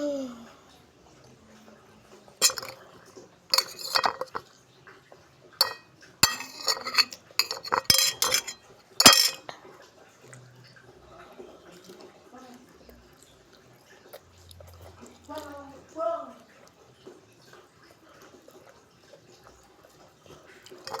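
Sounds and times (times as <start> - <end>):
cutlery clinking on a plate: 2.4 - 2.8, 3.5 - 4.4, 5.6 - 9.5, 20.7 - 21.0.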